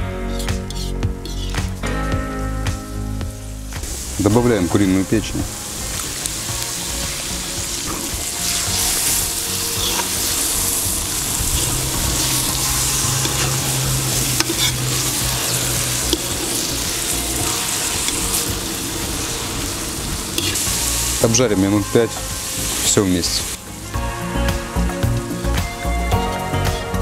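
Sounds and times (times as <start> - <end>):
metal spoon stirring: 0.3 - 1.6, 7.8 - 21.3
liver sizzling in hot oil: 0.3 - 2.0, 2.9 - 27.0.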